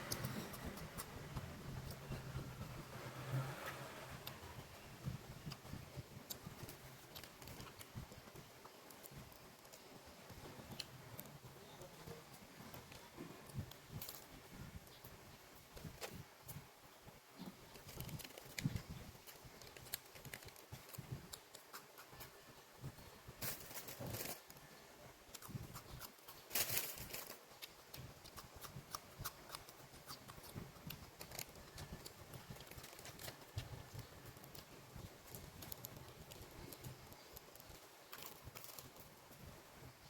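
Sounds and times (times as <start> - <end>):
person chewing bread: 25.2 - 39.4.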